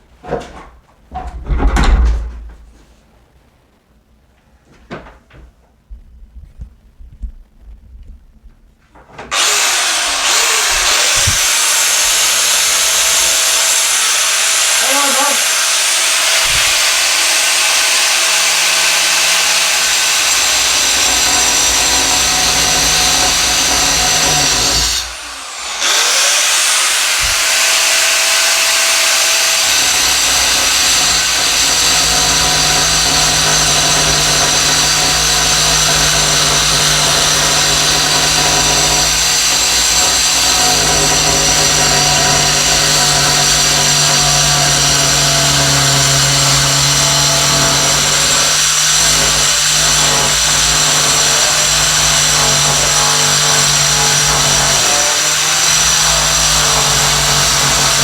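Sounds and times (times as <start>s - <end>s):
angle grinder cutting metal: 9.3s - 58.0s.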